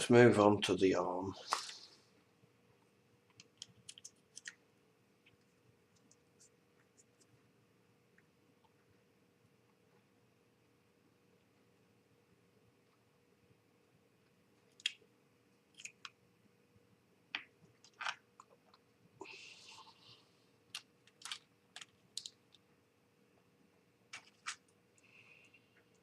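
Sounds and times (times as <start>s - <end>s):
small parts clicking and tapping: 3.3s - 4.6s, 20.7s - 22.6s.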